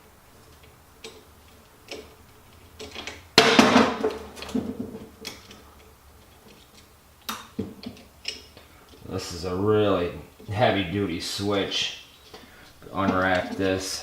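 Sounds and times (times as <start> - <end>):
loud metal clatter: 3.4 - 4.9.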